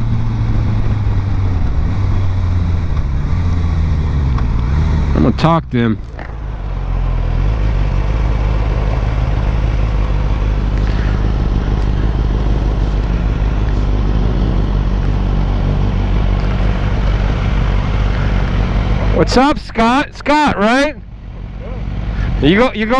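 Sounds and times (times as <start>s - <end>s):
motorcycle engine drone: 0.0s - 22.9s
wind rushing over microphone: 7.5s - 19.6s.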